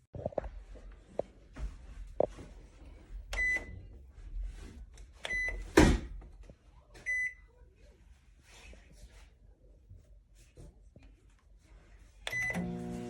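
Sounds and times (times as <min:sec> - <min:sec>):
microwave keypad beeps: 0:03.4 - 0:03.7, 0:05.3 - 0:05.6, 0:12.3 - 0:12.8.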